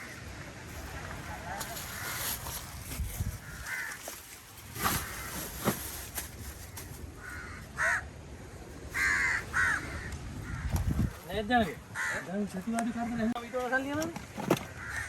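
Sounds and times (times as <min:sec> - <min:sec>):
crows cawing: 0:01.9 - 0:02.4, 0:03.4 - 0:05.7, 0:06.6 - 0:11.2, 0:11.8 - 0:12.7, 0:14.6 - 0:15.0.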